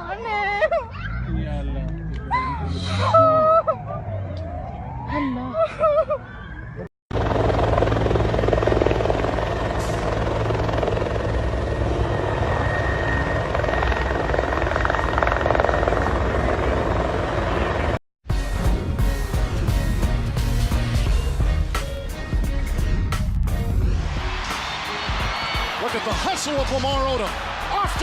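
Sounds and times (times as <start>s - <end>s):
helicopter rotor beating: 7.1s - 18.0s.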